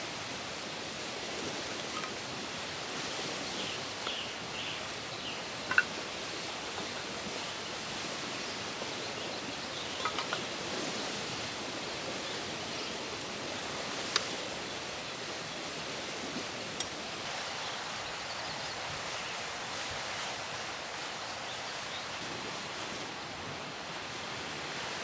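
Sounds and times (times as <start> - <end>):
outdoor background noise: 0.0 - 25.0.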